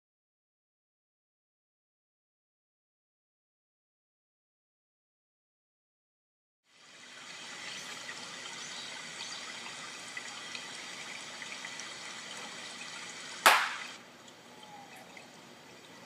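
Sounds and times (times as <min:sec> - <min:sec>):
water dripping: 0:06.7 - 0:16.0
water trickling: 0:06.7 - 0:16.0
sharp hand clap: 0:13.4 - 0:13.9.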